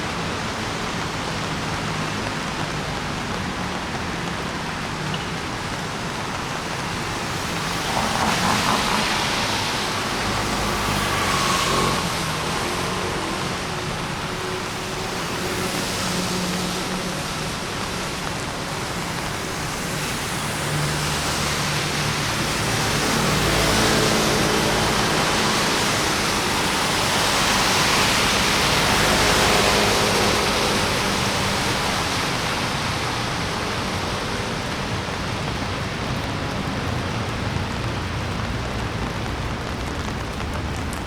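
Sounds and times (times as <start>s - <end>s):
city traffic on wet road: 0.0s - 41.0s
steady rain: 0.0s - 41.0s
vehicle passing with tyre hiss: 7.2s - 35.8s.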